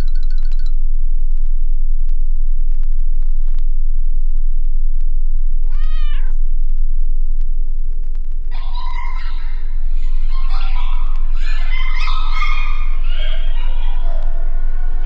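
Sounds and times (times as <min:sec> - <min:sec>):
crackles: 0:00.0 - 0:15.0
loud low hum: 0:00.8 - 0:15.0
cat meow: 0:05.7 - 0:06.4.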